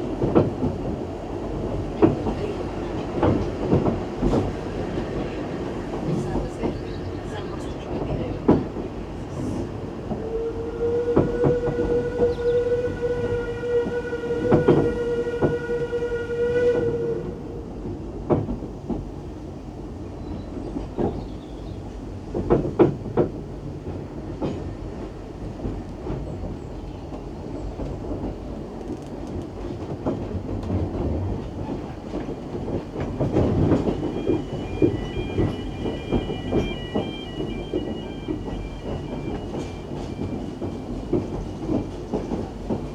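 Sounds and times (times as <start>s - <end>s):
coaches clattering on rails: 0.0s - 10.3s, 20.2s - 42.9s
steam locomotive whistle: 10.2s - 17.6s, 33.0s - 42.0s
thin high tone: 33.6s - 41.1s.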